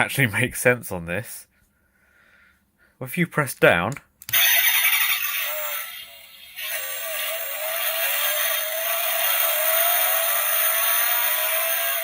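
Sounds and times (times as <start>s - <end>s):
electronic engine revving effect: 4.4s - 12.0s.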